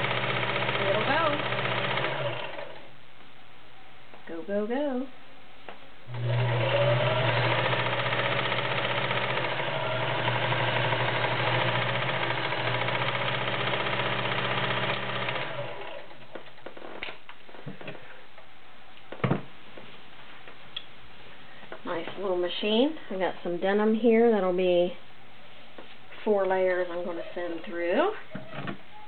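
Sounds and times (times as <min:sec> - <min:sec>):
sewing machine running: 0:00.0 - 0:02.9, 0:06.1 - 0:16.2.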